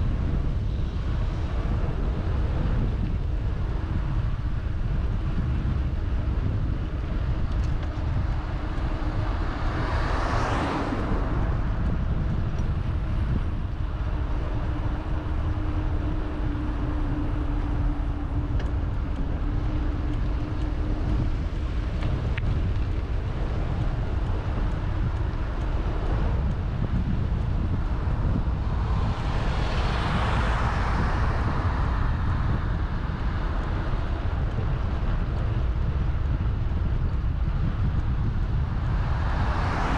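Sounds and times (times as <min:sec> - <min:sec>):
vehicles passing: 0:00.0 - 0:39.9
wind rumble on microphone: 0:00.0 - 0:39.9
low steady hum: 0:10.8 - 0:39.9.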